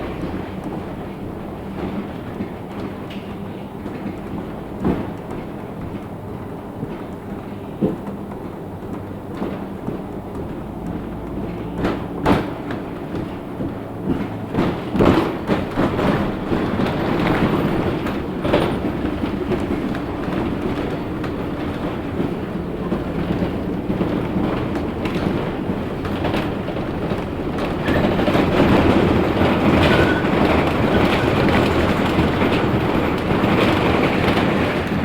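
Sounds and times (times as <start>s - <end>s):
bus engine and road hum: 0.0s - 35.0s
sharp knocks from bumps: 2.7s - 17.5s.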